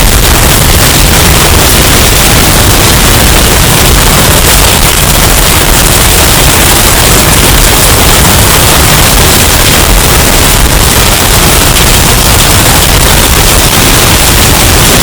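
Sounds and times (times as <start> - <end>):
distorted hurricane wind: 0.0 - 15.0.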